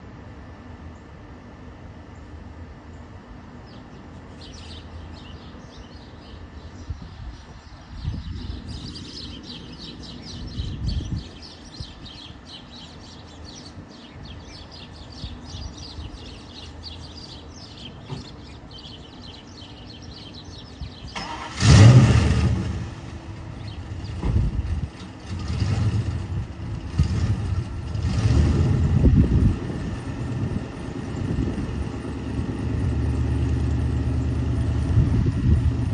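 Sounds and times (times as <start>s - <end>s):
birds chirping: 2.1s - 21.8s, 22.8s - 25.6s
car engine revving: 21.2s - 34.8s.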